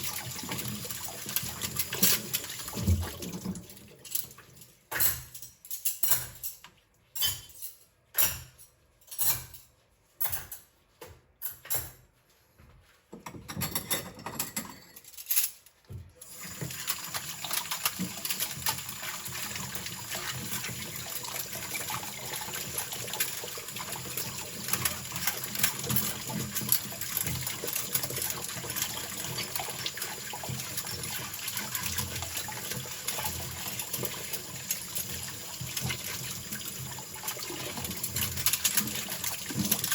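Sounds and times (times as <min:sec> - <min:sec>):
sink tap running: 0:00.0 - 0:03.9, 0:16.2 - 0:39.9.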